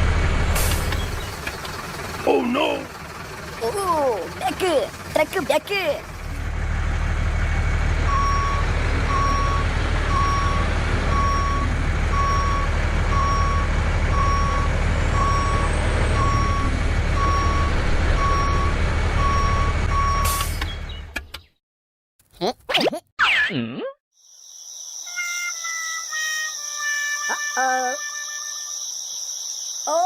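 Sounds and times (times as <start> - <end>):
truck engine drone: 0.0 - 21.2
truck reversing alarm beeping: 7.9 - 21.0.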